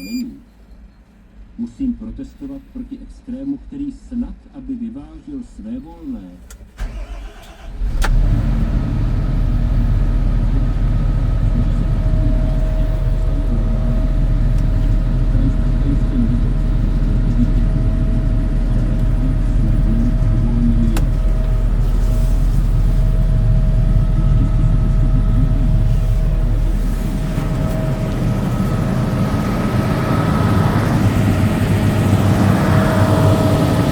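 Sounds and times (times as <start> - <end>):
faint steady whine: 0.0 - 6.6, 8.8 - 33.9
excavator diesel engine starting: 6.5 - 33.9.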